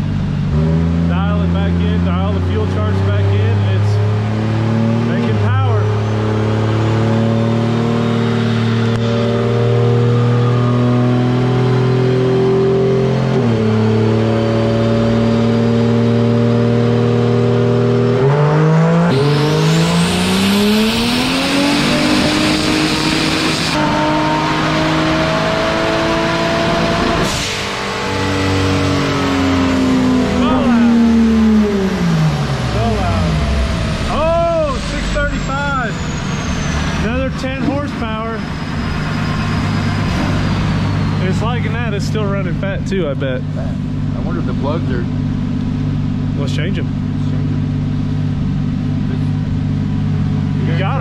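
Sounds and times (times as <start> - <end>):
car engine full-throttle pull: 0.0 - 51.0
turbo whistle and air rush: 34.2 - 37.1.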